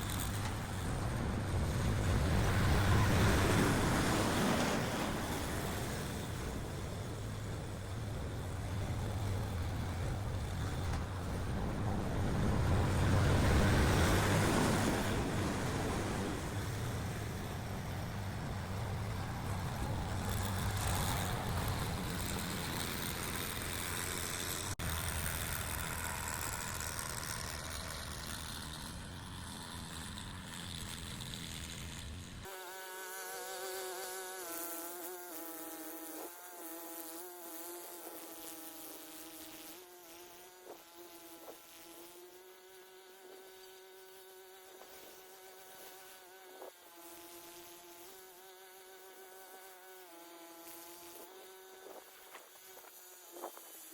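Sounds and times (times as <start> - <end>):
wind noise on microphone: 0.0 - 24.4
engine running: 0.0 - 32.5.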